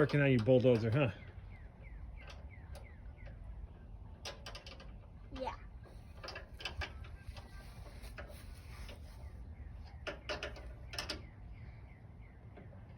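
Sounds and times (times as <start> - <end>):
clicks and knocks of parts and wrench: 4.1 - 9.0, 9.8 - 11.4.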